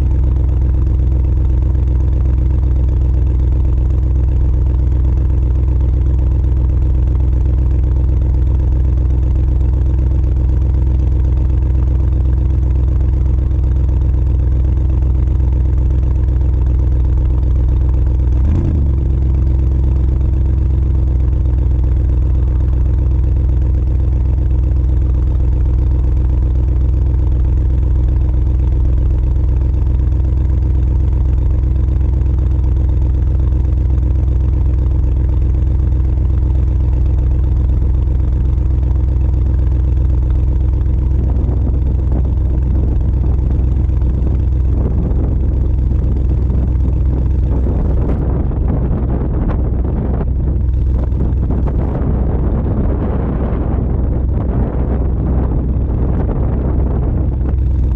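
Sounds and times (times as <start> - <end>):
car engine idling: 0.0 - 57.9.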